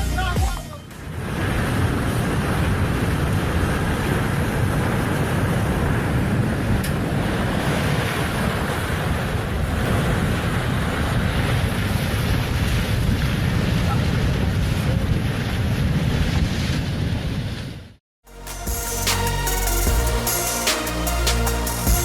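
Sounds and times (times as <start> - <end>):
waves rushing: 1.0 - 12.6
wind buffeting microphone: 1.0 - 17.6.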